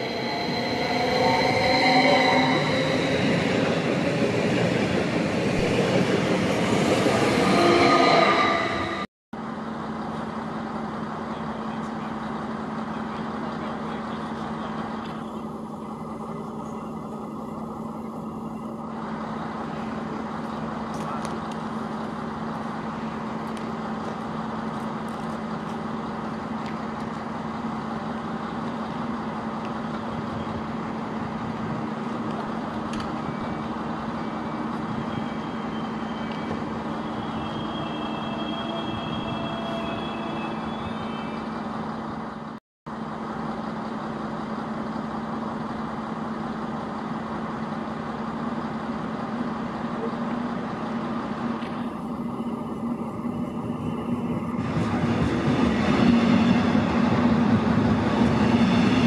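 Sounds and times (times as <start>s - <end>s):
faint high train squeal: 0.0s - 4.4s, 6.6s - 9.1s, 28.3s - 42.5s, 49.9s - 59.0s
train humming and rumbling: 0.0s - 59.0s.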